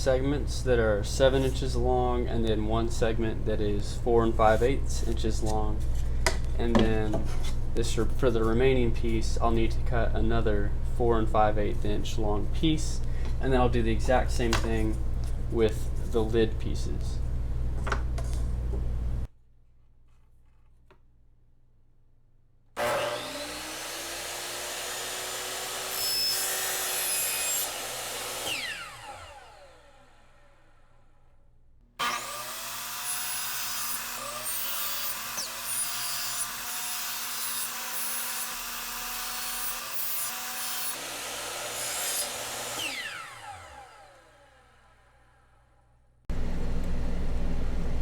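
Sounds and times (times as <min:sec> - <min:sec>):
miter saw whining: 0:22.8 - 0:31.0, 0:32.0 - 0:45.6.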